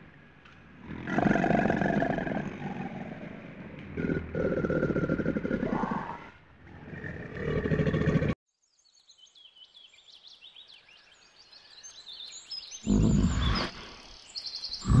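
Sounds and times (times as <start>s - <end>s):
bear growling: 0.8s - 8.4s
small birds chirping: 6.6s - 15.0s.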